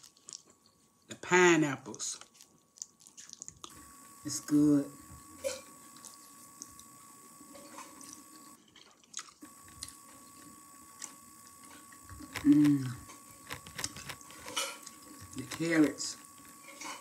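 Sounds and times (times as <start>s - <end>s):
person chewing noodles: 0.0s - 1.1s, 2.2s - 4.2s, 5.1s - 15.6s
person humming: 12.3s - 13.1s.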